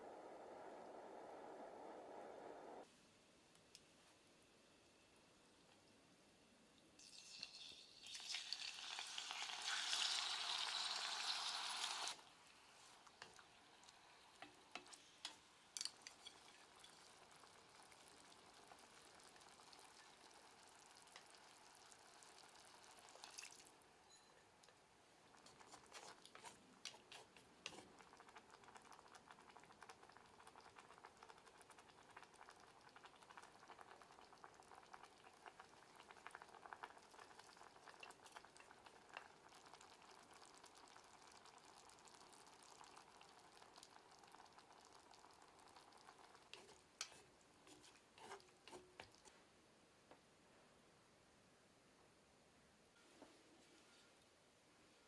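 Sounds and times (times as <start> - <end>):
food sizzling in a pan: 7.0 - 24.3, 25.4 - 49.3.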